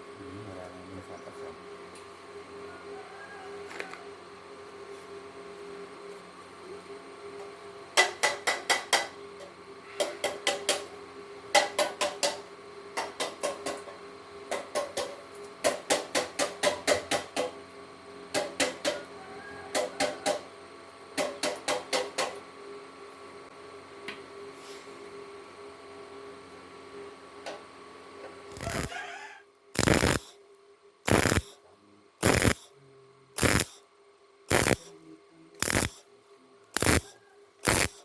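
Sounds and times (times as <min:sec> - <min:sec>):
steady hum: 0:28.5 - 0:38.0.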